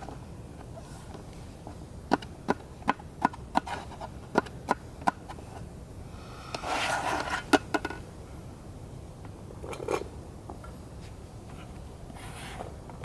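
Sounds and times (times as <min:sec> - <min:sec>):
scraping rustle: 0:06.6 - 0:07.5.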